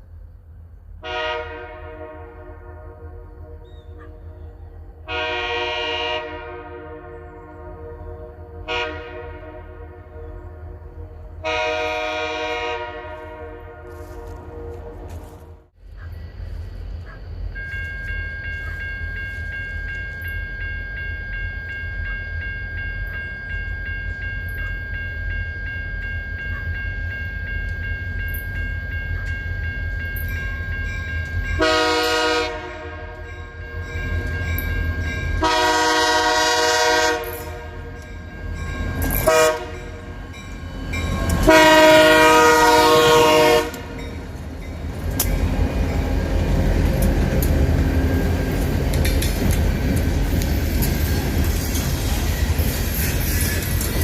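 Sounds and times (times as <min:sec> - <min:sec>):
diesel locomotive rumble: 0:00.0 - 0:54.0
locomotive air horn blasts: 0:01.0 - 0:04.3, 0:05.0 - 0:15.7, 0:31.6 - 0:33.9, 0:35.4 - 0:38.2, 0:39.1 - 0:44.0
steady high tone: 0:17.5 - 0:54.0.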